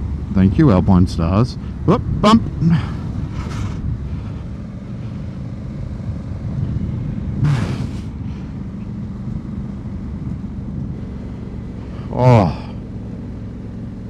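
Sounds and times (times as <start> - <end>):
motorcycle engine running: 0.0 - 14.0
tyre and wind noise: 1.9 - 11.1.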